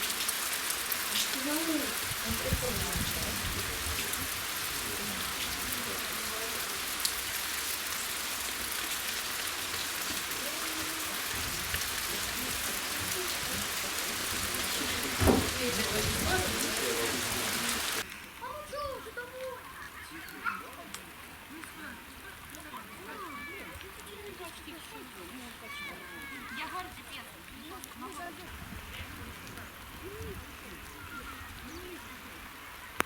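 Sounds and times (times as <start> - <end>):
rain hissing: 0.0 - 33.0
faint calls and voices: 10.0 - 33.0
thump: 15.2 - 15.9.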